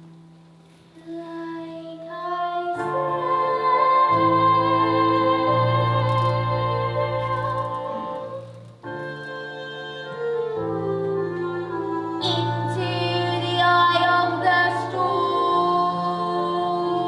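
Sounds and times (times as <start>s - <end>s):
woman singing: 1.0s - 8.5s, 11.1s - 17.0s.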